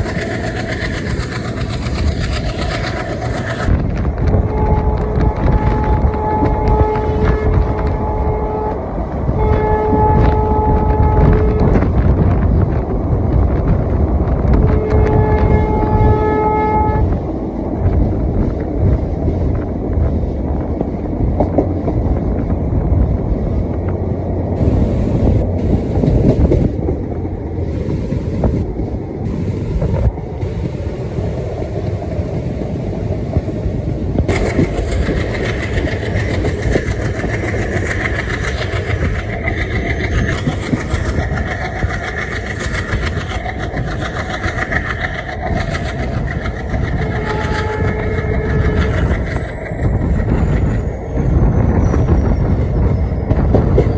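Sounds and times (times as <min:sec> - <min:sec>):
train rumbling on rails: 0:00.0 - 0:53.9
wheels clattering over rail joints: 0:34.2 - 0:53.9.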